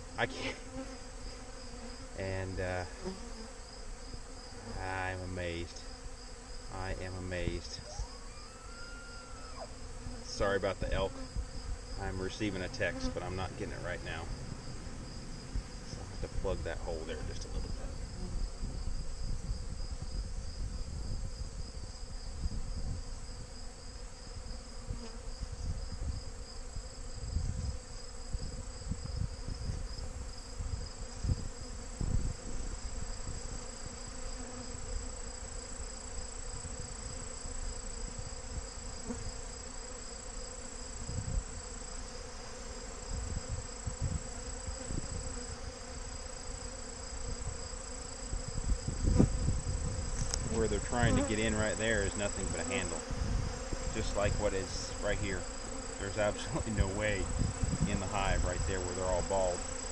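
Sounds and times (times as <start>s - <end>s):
bees buzzing: 0.0s - 20.8s, 21.4s - 59.9s
high insect trill: 0.0s - 59.9s
wind noise on microphone: 10.7s - 34.0s, 36.6s - 39.2s, 41.0s - 41.6s, 42.9s - 45.7s, 47.2s - 55.4s, 56.2s - 59.6s.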